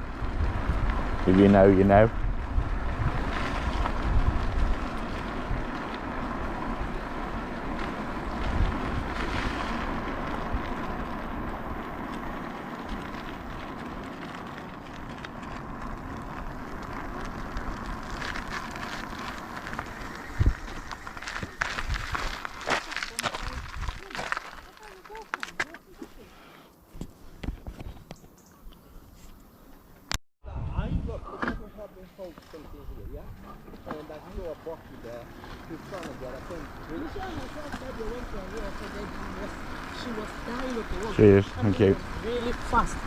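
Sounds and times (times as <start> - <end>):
wind on microphone: 0.0 - 6.0, 19.5 - 22.6, 23.2 - 24.1, 30.4 - 31.4
tyre rumble: 0.0 - 26.2.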